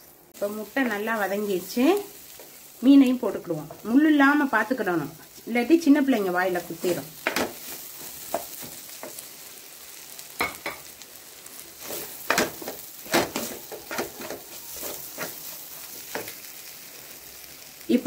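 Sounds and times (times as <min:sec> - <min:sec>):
food frying hiss: 0:00.0 - 0:18.0
spatula scraping a pan: 0:06.6 - 0:09.3, 0:11.5 - 0:16.5.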